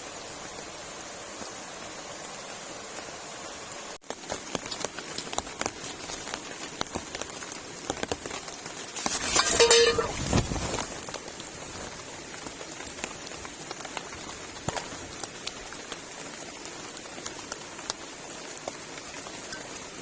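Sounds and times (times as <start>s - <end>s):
rain falling: 0.0s - 20.0s
raindrops tapping a surface: 4.0s - 20.0s.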